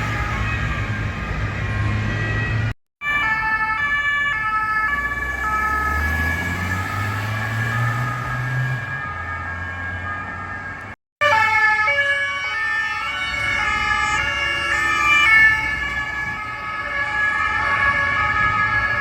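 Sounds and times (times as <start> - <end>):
vehicle engines: 0.0 - 11.0
two-tone police sirens: 0.0 - 19.0.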